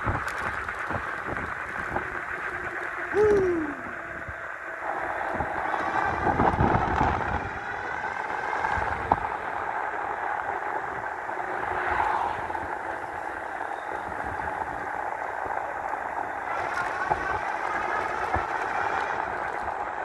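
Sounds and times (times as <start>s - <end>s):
road and tyre noise: 0.0s - 20.0s
wind on microphone: 0.0s - 20.0s.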